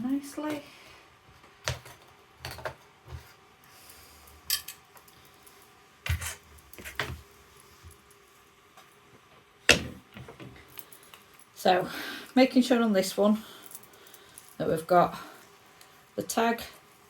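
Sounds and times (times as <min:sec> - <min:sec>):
small objects clicking and knocking: 0:13.5 - 0:14.6.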